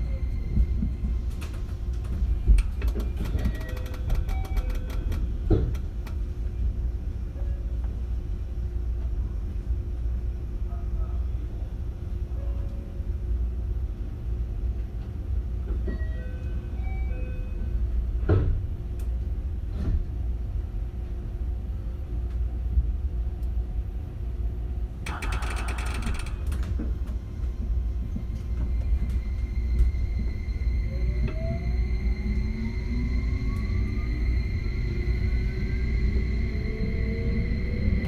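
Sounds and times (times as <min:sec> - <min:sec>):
train wheels rumbling on rail: 0:00.0 - 0:38.0
train inverter tone rising: 0:27.4 - 0:38.0.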